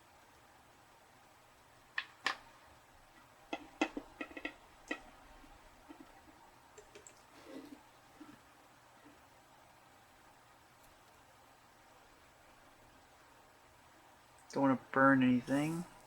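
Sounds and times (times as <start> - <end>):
small tools clicking and tapping: 3.5 - 5.2.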